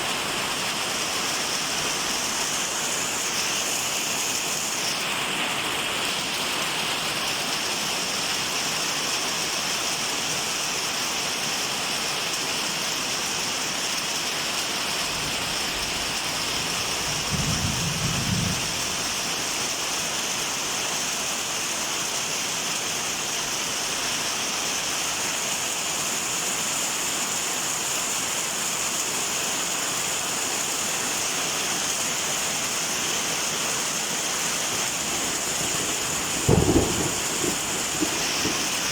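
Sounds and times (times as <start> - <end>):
steady rain falling: 0.0 - 38.9
low rumble of thunder: 16.7 - 19.2, 34.6 - 38.9.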